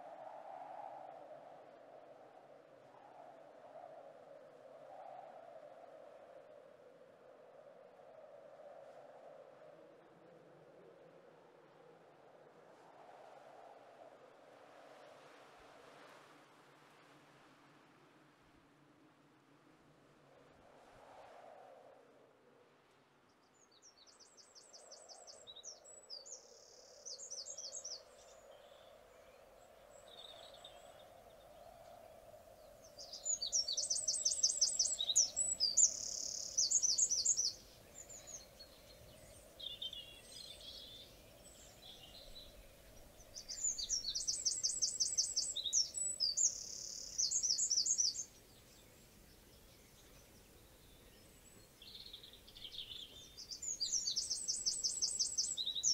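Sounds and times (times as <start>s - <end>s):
songbird trilling: 32.9s - 38.5s, 43.3s - 48.4s, 51.9s - 55.9s.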